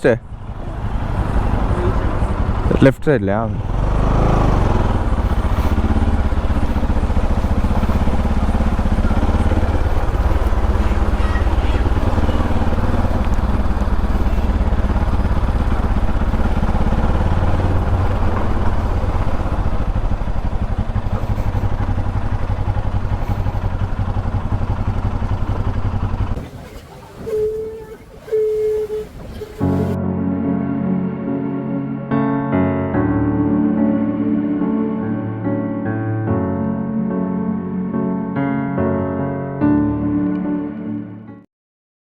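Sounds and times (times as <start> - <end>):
motorcycle engine droning: 0.0 - 30.0.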